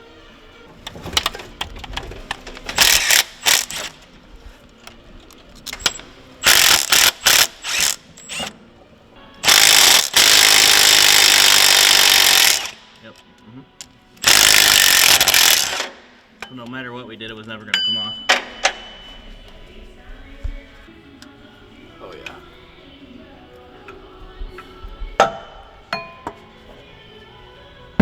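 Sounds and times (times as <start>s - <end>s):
air impact wrench hammering: 2.6s - 4.0s, 5.8s - 8.6s, 9.4s - 13.0s, 14.2s - 16.1s, 17.8s - 19.4s, 25.2s - 26.1s.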